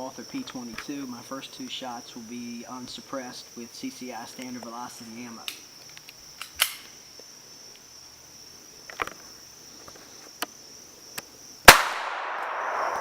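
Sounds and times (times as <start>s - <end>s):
gunshot echo: 11.7s - 13.0s
pistol shot: 11.7s - 13.0s.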